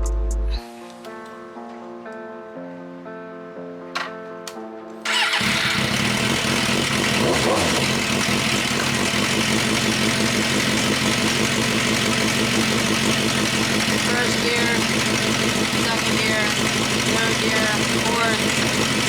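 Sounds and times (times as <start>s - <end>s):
guitar music: 0.0s - 5.8s
motorcycle engine running: 5.1s - 19.0s.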